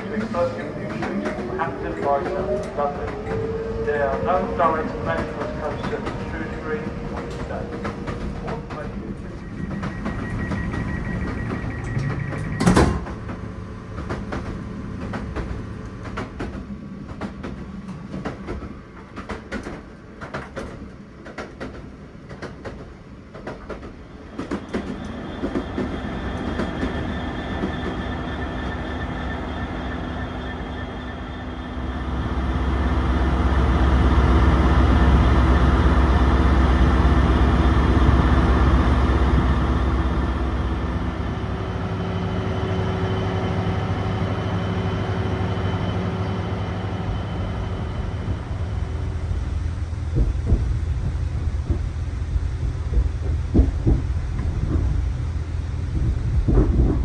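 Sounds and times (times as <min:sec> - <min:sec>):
train running with rattling clicks: 0:00.0 - 0:57.0
diesel locomotive idling: 0:24.6 - 0:57.0.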